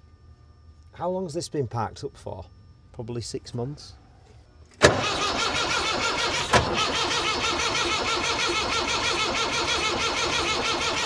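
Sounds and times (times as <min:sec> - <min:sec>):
starter motor cranking diesel engine: 0:04.8 - 0:11.0.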